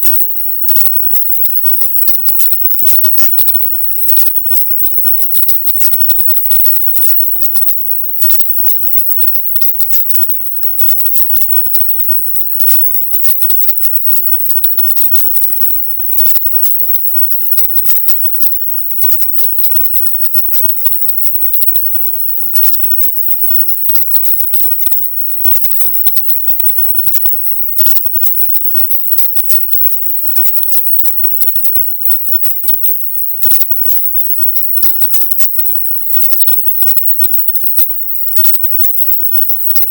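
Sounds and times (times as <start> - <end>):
high-pitched hiss: 0.0 - 39.9.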